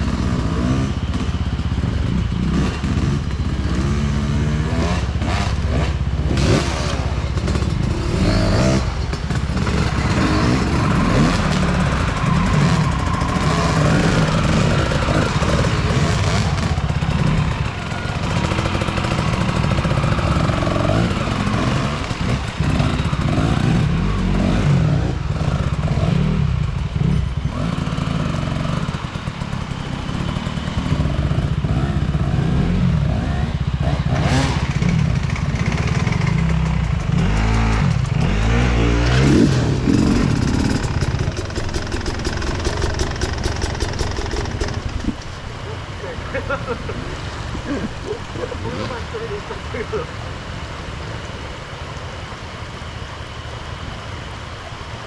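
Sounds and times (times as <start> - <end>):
motorcycle engine revving: 0.0 - 51.2
knocks and clatter from bike: 4.9 - 31.2, 34.1 - 45.6, 47.2 - 48.5.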